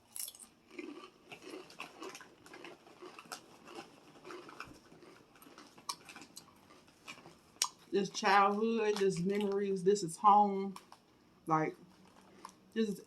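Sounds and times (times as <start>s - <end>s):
chewing food: 0.4s - 9.7s, 10.7s - 11.2s, 11.8s - 13.0s.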